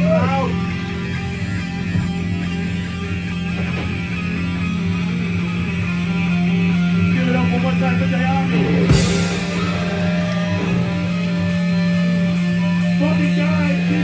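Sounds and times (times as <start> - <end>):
electric guitar: 0.0 - 14.0
heavy metal band playing loud: 0.0 - 14.0
sustained low drone: 0.0 - 14.0
sharp hit: 8.5 - 12.8.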